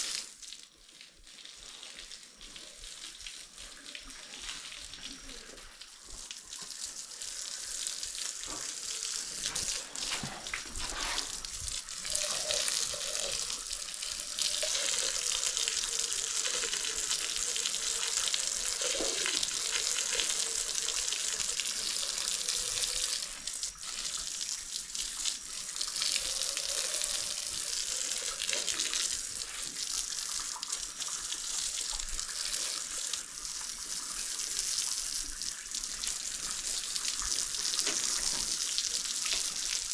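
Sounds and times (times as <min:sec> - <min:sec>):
hose spraying water: 0:01.5 - 0:39.9.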